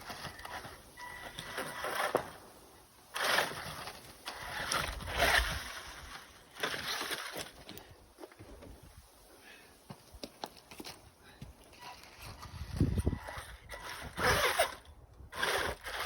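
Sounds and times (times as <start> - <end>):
electric motor whirring: 12.5 - 16.0.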